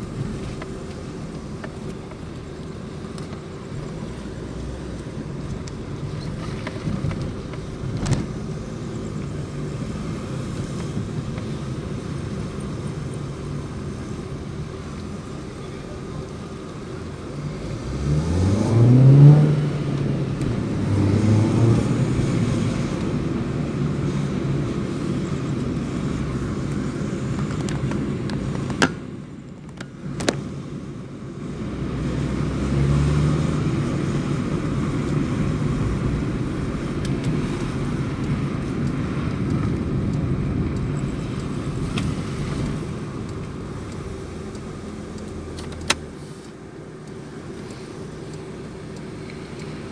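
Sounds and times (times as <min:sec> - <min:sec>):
car engine drone: 0:00.0 - 0:49.9
sharp clicks: 0:36.8 - 0:49.9.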